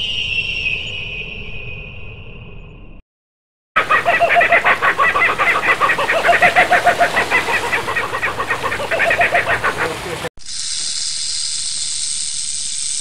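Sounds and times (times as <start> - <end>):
high steady whistle: 0.0 - 2.2
kookaburra cackling: 3.8 - 10.3.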